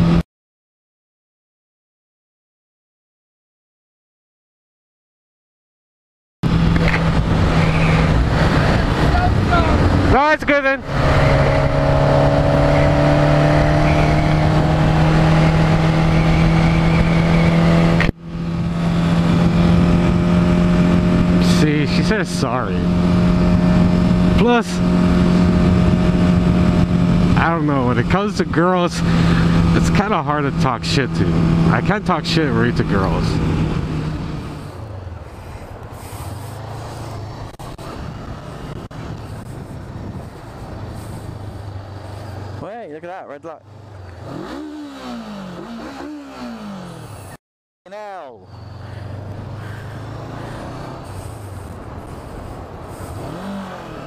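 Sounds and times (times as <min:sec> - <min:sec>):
road and wind noise: 0:00.0 - 0:00.2, 0:06.4 - 0:54.0
motorcycle engine running: 0:10.8 - 0:42.8, 0:48.0 - 0:54.0.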